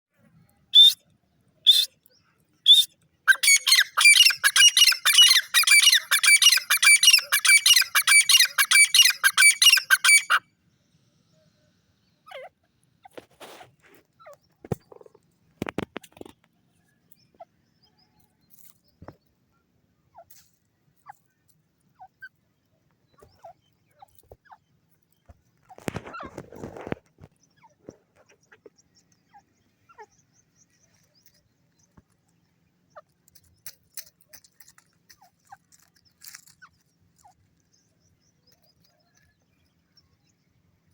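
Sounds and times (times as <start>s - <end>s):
francolin calling: 2.7s - 10.4s.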